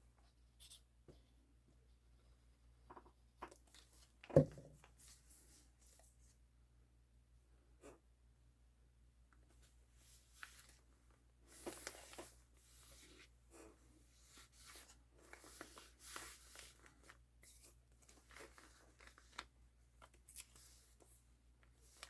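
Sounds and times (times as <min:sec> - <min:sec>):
paper rustling and scratching: 0:11.5 - 0:21.1.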